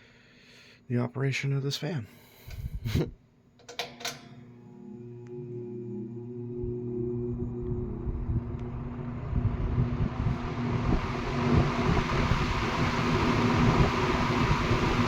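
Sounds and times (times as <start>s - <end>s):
fan blades rushing air: 2.4s - 3.1s, 4.8s - 15.0s
fan switch click: 3.6s - 4.4s
low motor hum: 4.2s - 15.0s.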